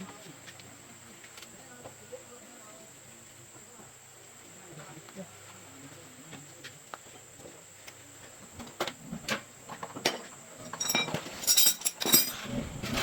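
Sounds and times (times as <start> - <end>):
metal tools clinking: 10.6 - 13.0.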